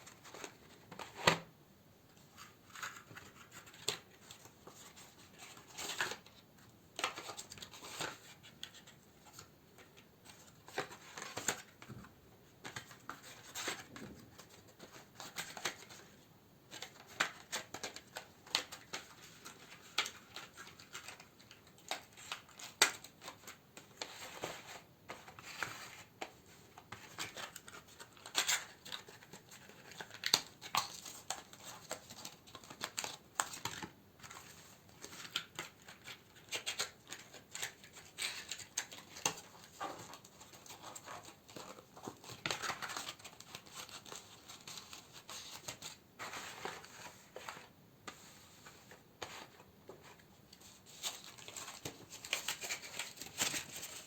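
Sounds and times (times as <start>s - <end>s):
packaging crinkling and rustling: 12.6s - 47.8s, 48.6s - 54.0s.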